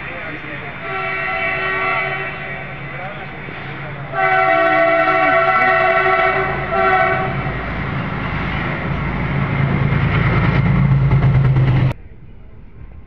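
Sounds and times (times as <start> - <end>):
train wheels on rail: 0.0 - 12.0
rushing air: 6.5 - 12.0.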